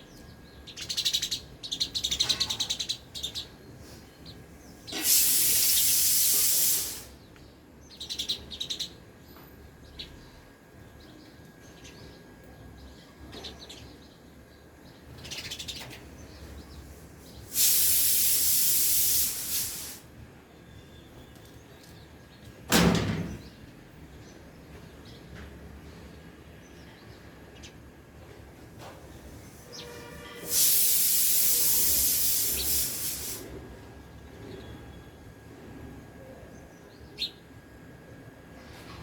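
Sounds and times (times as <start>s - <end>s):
sparrows chirping: 0.0s - 33.4s, 34.0s - 35.4s, 36.0s - 39.0s
loud hiss bursts: 4.9s - 7.3s, 17.4s - 20.1s, 29.5s - 33.6s.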